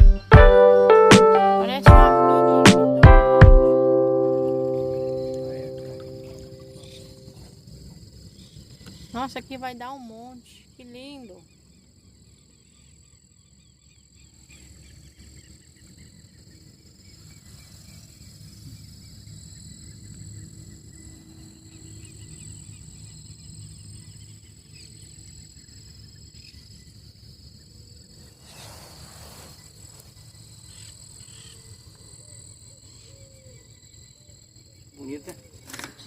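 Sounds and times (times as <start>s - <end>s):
insects trilling: 4.8s - 36.0s
brief hiss or rustle: 28.4s - 30.1s.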